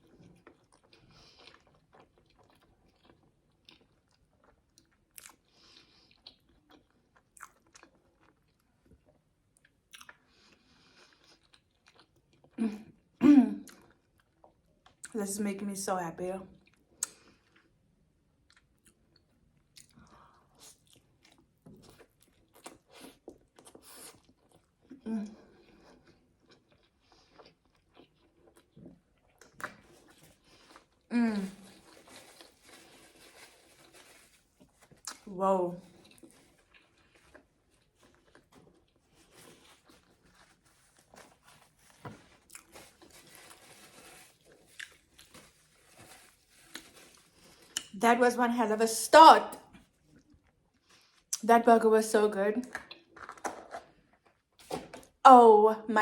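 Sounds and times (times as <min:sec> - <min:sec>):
mouth chewing food: 0:00.0 - 0:13.0, 0:18.4 - 0:43.6, 0:44.4 - 0:48.0.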